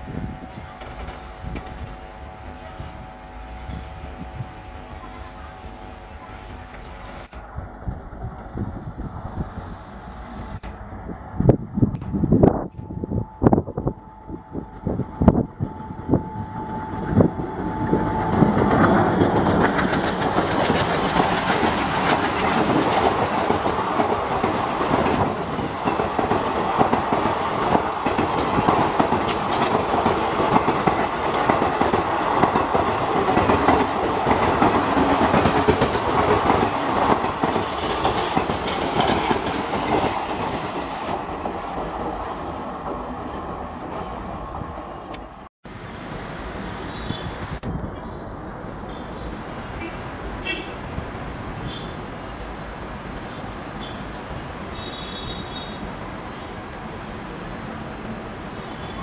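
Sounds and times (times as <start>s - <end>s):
train rolling past: 0.0s - 59.0s
wheels clacking over rail joints: 16.2s - 44.2s.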